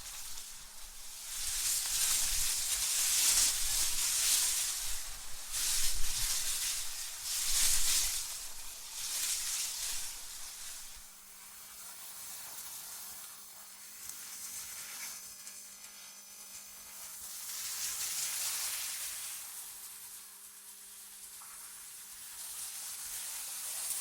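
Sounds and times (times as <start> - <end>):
hissing rush of wind: 0.0 - 11.1.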